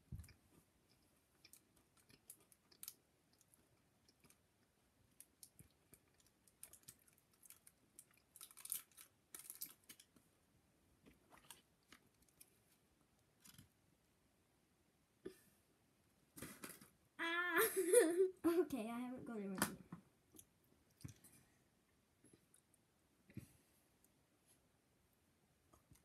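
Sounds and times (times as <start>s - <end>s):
faint chewing: 0.1s - 10.2s, 20.3s - 21.6s.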